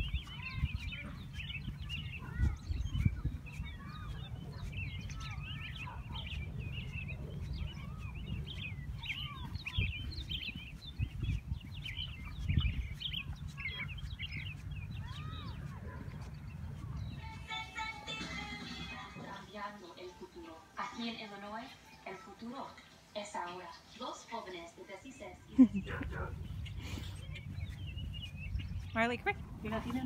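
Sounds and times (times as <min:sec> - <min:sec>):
birds chirping and calling: 0:00.0 - 0:30.0
low rumble: 0:25.5 - 0:30.0.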